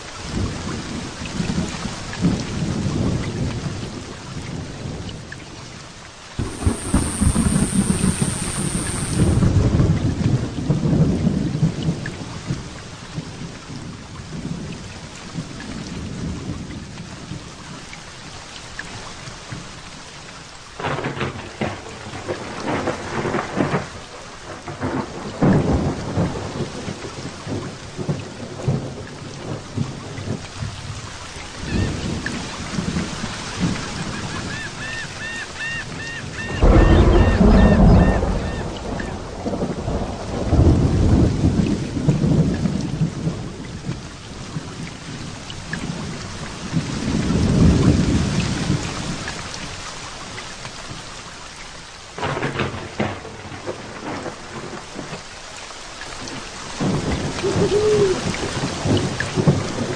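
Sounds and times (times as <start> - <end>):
heavy rain falling: 0.0 - 59.9
crackling thunder peals: 6.4 - 12.6, 20.8 - 34.5, 35.9 - 49.3, 52.2 - 55.2, 56.3 - 59.9
thunder rumbling: 6.4 - 14.8, 35.9 - 49.3, 52.2 - 55.2, 56.8 - 59.9.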